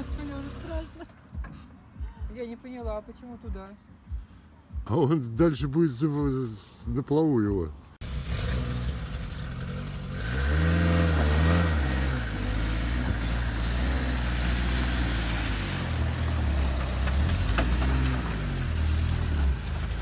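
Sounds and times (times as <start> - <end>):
car engine revving under load: 8.0 - 20.0.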